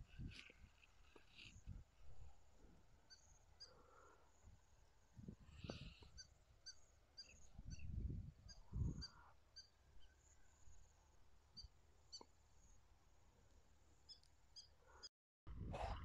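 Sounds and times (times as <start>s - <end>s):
small birds chirping: 0.0s - 15.1s
muffled microphone rumbles: 15.5s - 16.0s.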